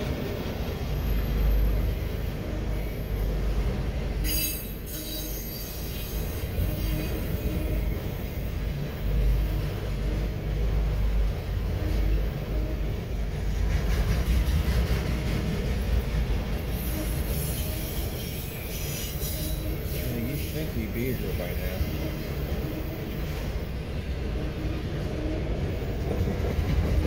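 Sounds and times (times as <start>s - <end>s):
high-pitched wheel squeal: 4.2s - 8.0s, 16.7s - 20.6s
freight car wheels rumbling on rails: 6.1s - 27.0s.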